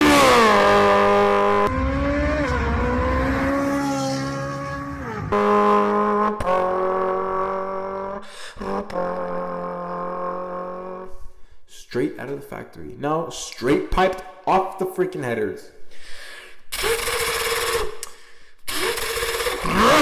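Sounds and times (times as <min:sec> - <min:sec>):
car engine revving: 0:00.0 - 0:11.1, 0:18.7 - 0:20.0.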